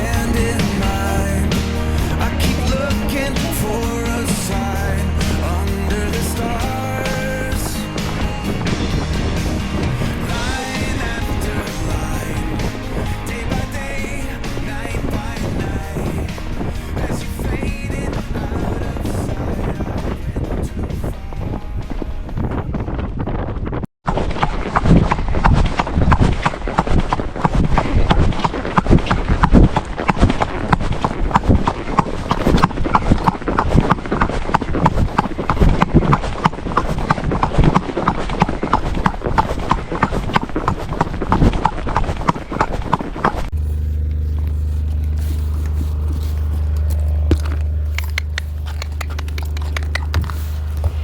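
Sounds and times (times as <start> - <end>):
low rumble: 0.0 - 23.3, 43.5 - 51.0
horse hoofbeats: 0.0 - 23.6, 24.7 - 51.0
scattered clicks: 46.6 - 50.8.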